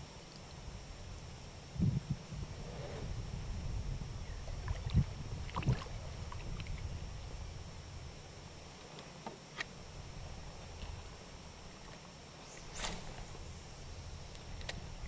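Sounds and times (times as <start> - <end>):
water and wind rumble on hull: 0.8 - 8.8.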